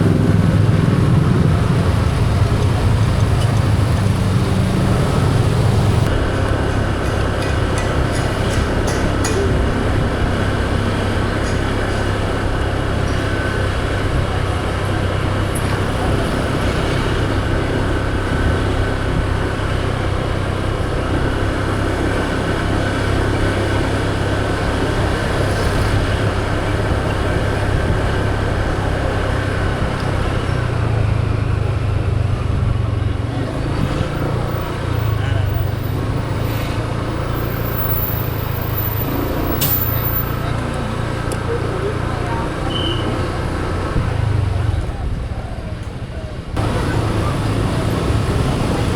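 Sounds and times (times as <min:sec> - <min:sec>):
motor scooter engine running: 0:00.0 - 0:48.9
other traffic: 0:00.0 - 0:48.9.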